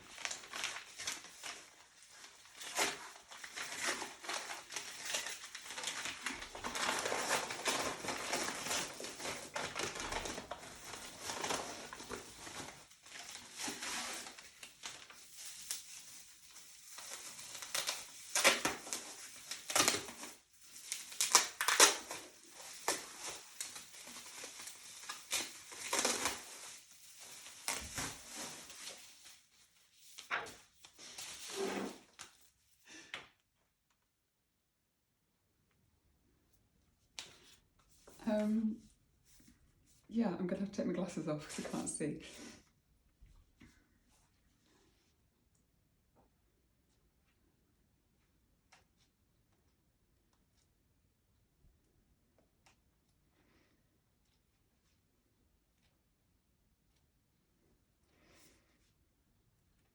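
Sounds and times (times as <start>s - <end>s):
packaging crinkling: 0.0s - 32.3s
packaging tearing: 2.5s - 15.1s, 17.0s - 29.0s.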